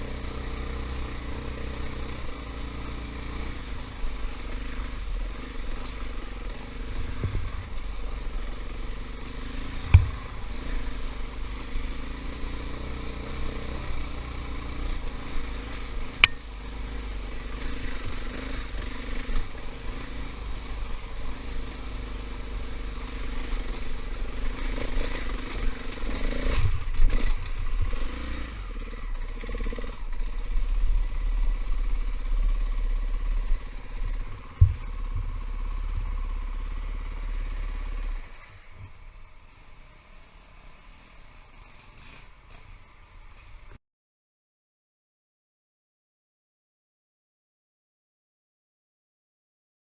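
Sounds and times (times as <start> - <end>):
dirt bike engine revving: 0.0 - 42.6
sharp knocks and clatter: 9.8 - 10.2.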